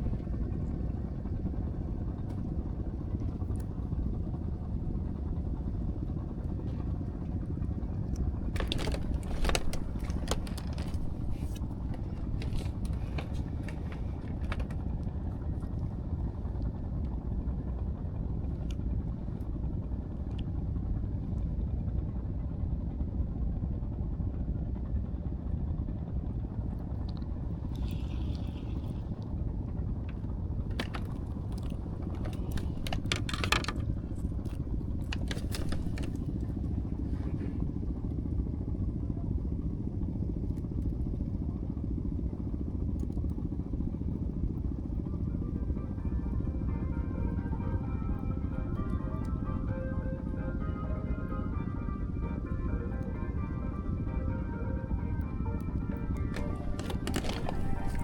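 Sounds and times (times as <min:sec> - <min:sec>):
light clicks and clatter: 0:00.0 - 0:17.2, 0:26.8 - 0:38.2, 0:56.1 - 0:58.0
boat engine rumbling: 0:00.0 - 0:21.0, 0:26.8 - 0:40.1, 0:43.6 - 0:58.0.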